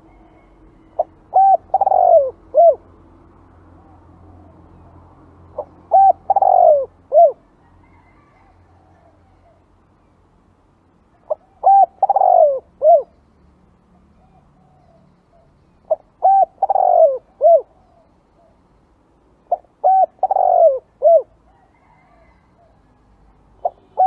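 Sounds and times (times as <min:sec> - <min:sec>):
dove cooing: 0:00.0 - 0:02.9, 0:05.5 - 0:09.6, 0:11.2 - 0:13.1, 0:14.2 - 0:18.6, 0:19.4 - 0:23.0, 0:23.6 - 0:24.0.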